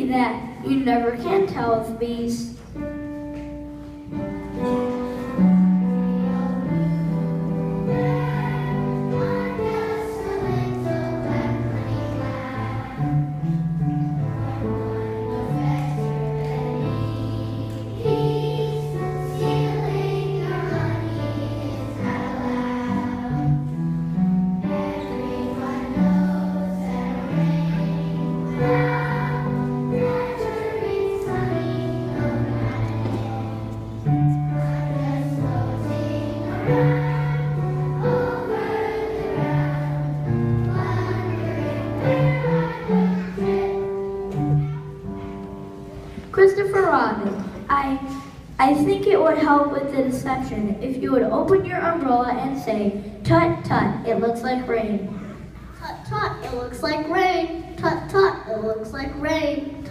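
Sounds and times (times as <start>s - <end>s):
musical accompaniment: 0.0s - 49.0s
children singing: 4.6s - 45.0s.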